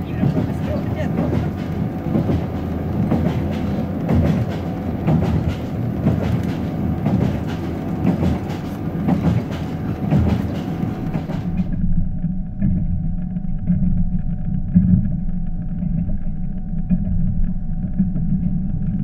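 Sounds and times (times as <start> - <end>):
wheels clacking over rail joints: 0.0 - 11.8
train rumbling inside carriage: 0.0 - 19.0.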